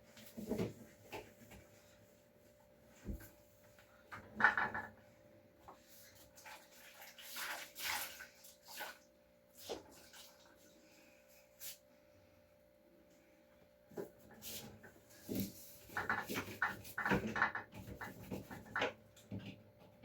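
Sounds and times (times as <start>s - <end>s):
faint steady hum: 10.4s - 15.9s.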